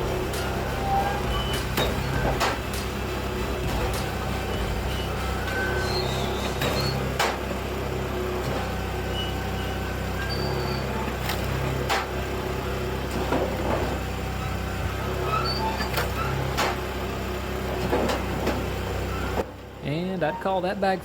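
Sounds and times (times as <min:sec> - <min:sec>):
short squeaks: 0:00.0 - 0:03.0, 0:03.9 - 0:07.4, 0:08.4 - 0:12.1, 0:13.1 - 0:16.9, 0:17.8 - 0:19.4
wood splitting and knocking: 0:00.0 - 0:03.0, 0:05.9 - 0:07.5, 0:11.2 - 0:12.2, 0:15.9 - 0:16.9
hydraulic firewood machine running: 0:00.0 - 0:21.0.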